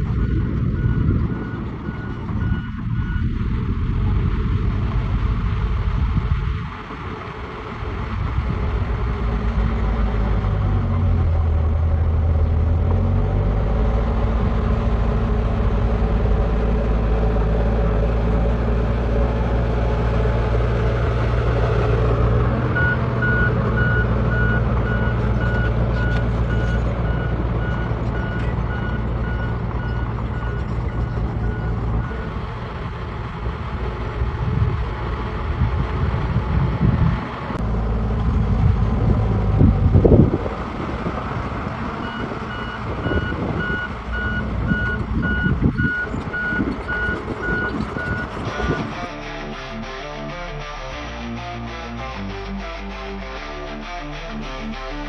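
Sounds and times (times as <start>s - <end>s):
heavy diesel engine running: 0.0s - 55.0s
reversing alarm beeping: 22.6s - 32.3s, 42.0s - 48.8s.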